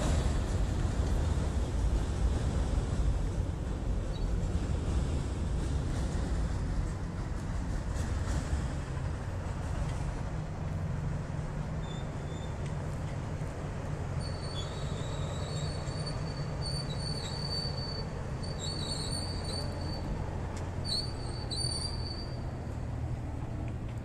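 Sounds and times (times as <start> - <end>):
train rumbling over bridge: 0.0 - 24.0
train wheels squealing: 4.1 - 4.4, 11.8 - 12.7, 14.1 - 22.6.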